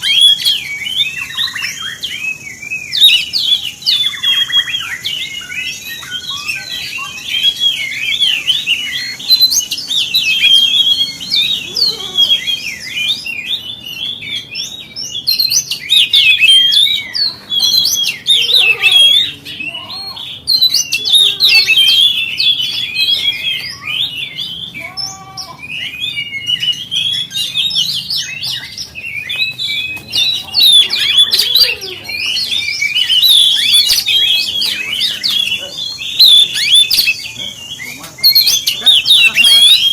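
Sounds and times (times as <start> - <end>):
bird singing whistles and chatter: 0.0 - 39.9.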